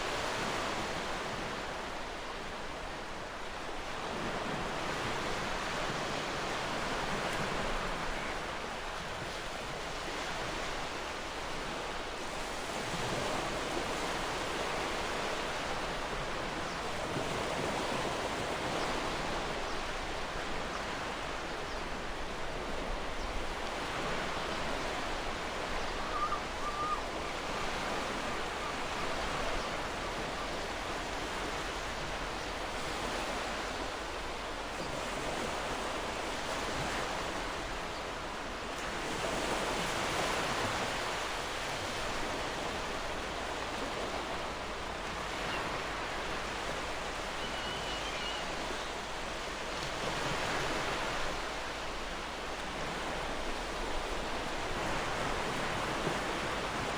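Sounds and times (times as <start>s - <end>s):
faint bird call: 25.8s - 30.6s, 47.1s - 49.0s.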